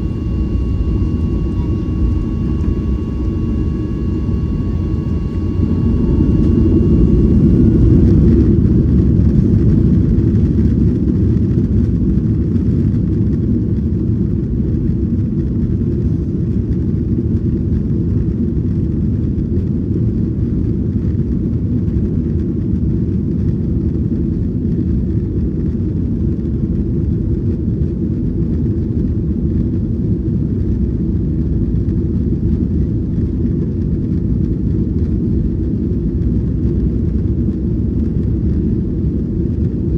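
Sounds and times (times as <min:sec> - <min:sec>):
thin whining tones: 0:00.0 - 0:09.2
jet cabin low rumble: 0:00.0 - 0:39.9.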